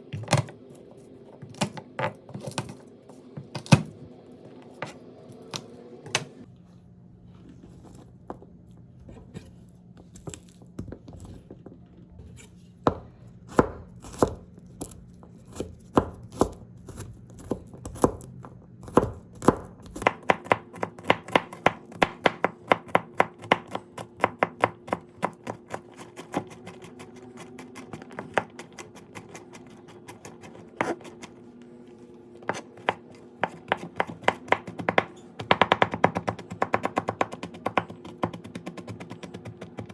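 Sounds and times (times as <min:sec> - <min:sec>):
knife chopping on cutting board: 0:12.4 - 0:18.2, 0:18.9 - 0:31.3, 0:32.4 - 0:39.9.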